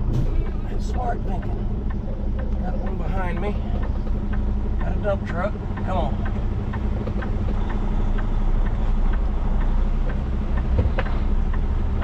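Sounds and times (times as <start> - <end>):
diesel engine running: 0.0 - 12.0
light ticking: 0.4 - 12.0.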